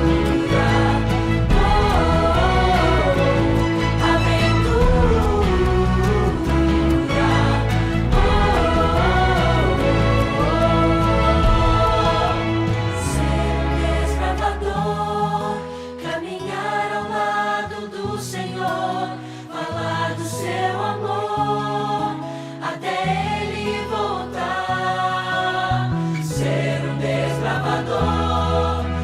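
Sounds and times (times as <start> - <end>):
sustained low bass notes: 0.0 - 14.8
choir singing slow song: 0.0 - 29.0.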